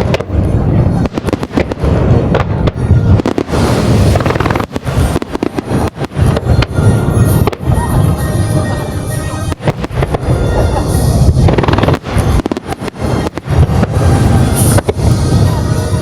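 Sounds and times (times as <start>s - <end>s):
music playing: 0.0s - 16.0s
firework shells bursting: 1.0s - 7.8s, 9.2s - 15.1s.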